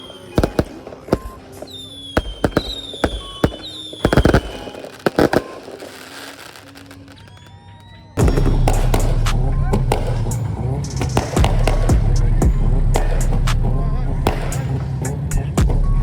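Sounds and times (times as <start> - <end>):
fireworks whistles sliding downward: 0.0 - 11.9
fireworks bangs: 0.0 - 15.8.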